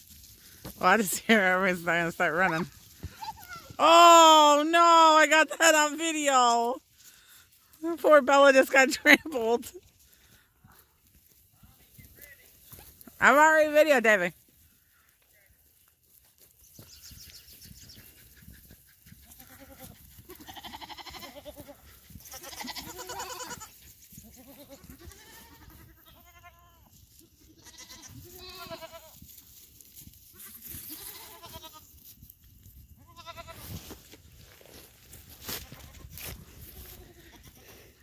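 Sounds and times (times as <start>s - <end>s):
goats bleating: 2.2s - 5.9s, 19.2s - 29.2s, 30.4s - 31.9s, 33.0s - 33.7s, 36.7s - 38.0s.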